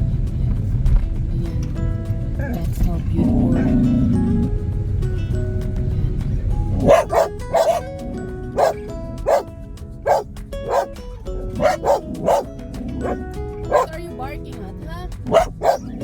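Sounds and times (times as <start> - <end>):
background music: 0.0 - 16.0
dog barking: 6.7 - 11.0, 11.6 - 14.0, 15.2 - 16.0.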